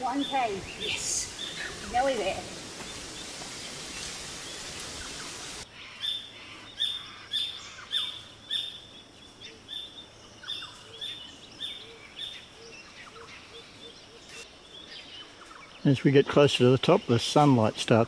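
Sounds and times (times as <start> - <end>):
steady hiss: 0.0 - 5.7, 13.6 - 18.0
birds chirping: 0.0 - 18.0.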